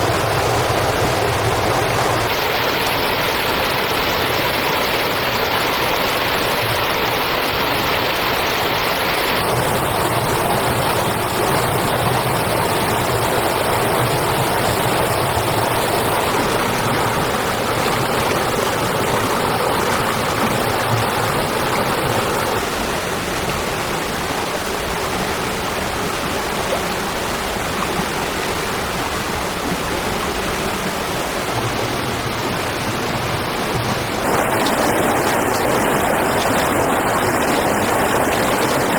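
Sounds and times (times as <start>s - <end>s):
steady rushing noise: 31.2s - 38.9s.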